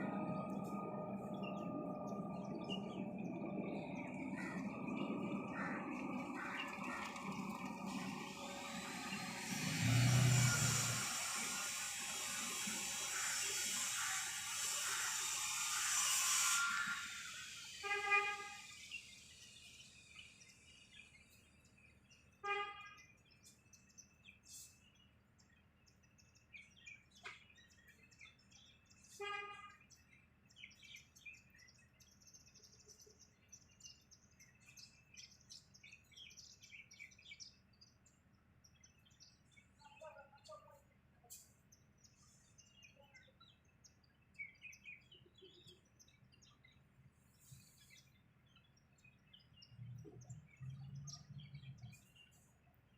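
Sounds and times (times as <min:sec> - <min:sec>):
birds chirping faintly: 0:00.0 - 0:11.8
loud noise: 0:00.0 - 0:17.1.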